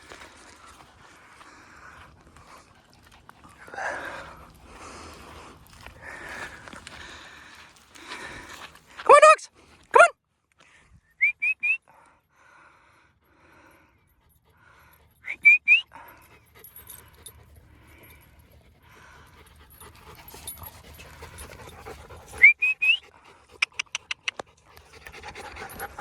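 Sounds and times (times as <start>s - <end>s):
dog panting: 0.0s - 8.8s, 12.8s - 26.0s
person whistling for dogs: 11.1s - 11.9s, 15.2s - 15.9s, 22.4s - 23.0s.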